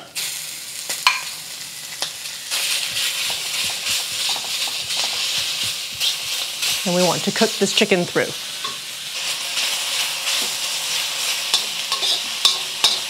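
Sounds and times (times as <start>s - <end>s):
chicken sizzling in wok: 0.0s - 13.0s
metal spatula scraping wok: 1.9s - 7.6s, 8.6s - 13.0s.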